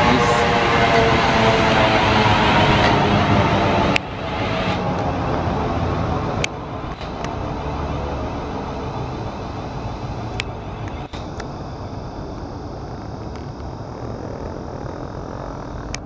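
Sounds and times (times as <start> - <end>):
train motor hum: 0.0 - 16.0
train wheels rumbling: 0.0 - 16.0
sharp clicks: 6.3 - 16.0.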